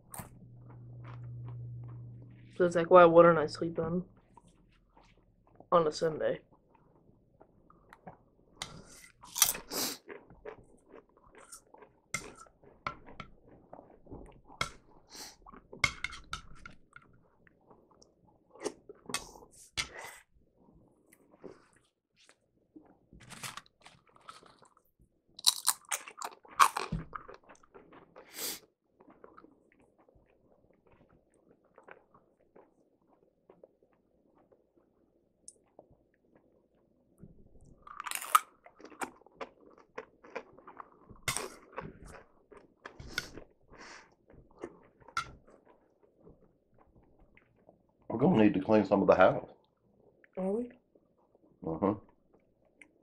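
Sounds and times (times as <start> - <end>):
chewing and crunching chips: 6.4 - 19.6, 20.5 - 48.1.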